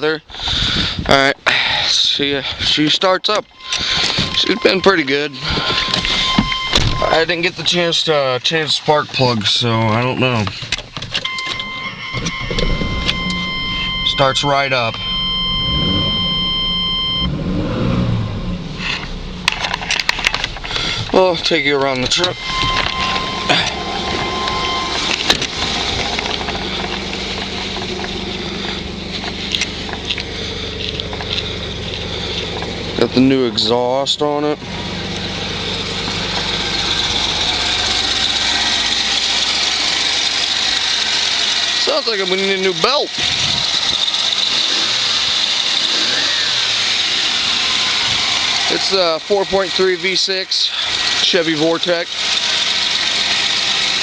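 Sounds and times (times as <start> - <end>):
engine idling: 0.0 - 54.0
high-pitched belt squeal: 3.4 - 7.4, 11.2 - 19.2, 20.6 - 27.6, 36.7 - 49.3
steady high whine: 11.2 - 50.0.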